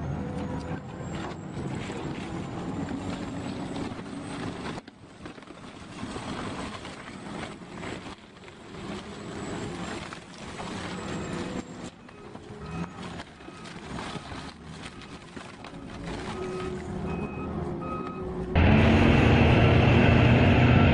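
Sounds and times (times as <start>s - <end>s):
vehicle engine running: 10.6s - 20.9s.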